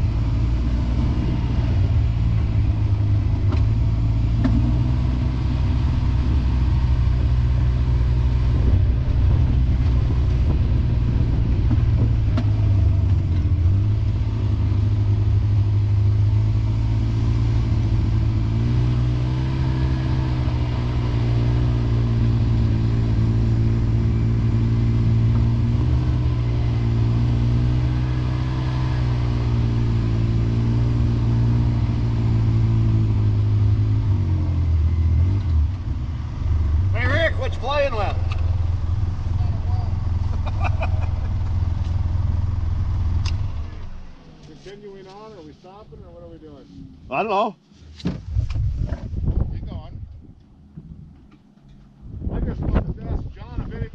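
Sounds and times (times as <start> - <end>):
rushing noise of travel: 0.0 - 53.9
vehicle engine running: 0.0 - 53.9.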